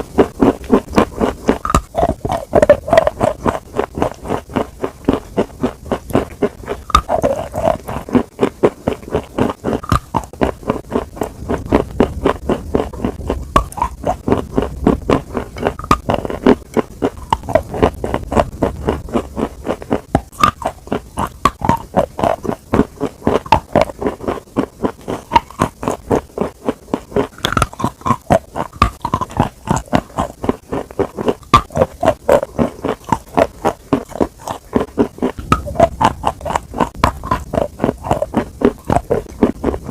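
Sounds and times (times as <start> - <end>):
crunchy chewing: 0.0 - 39.9
wet mouth sounds: 0.0 - 39.9.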